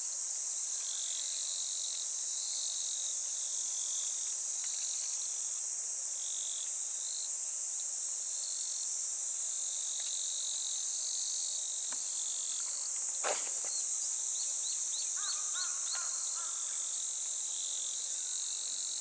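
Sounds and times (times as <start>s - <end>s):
insect trills: 0.6s - 19.0s
insect shrill drone: 10.4s - 19.0s.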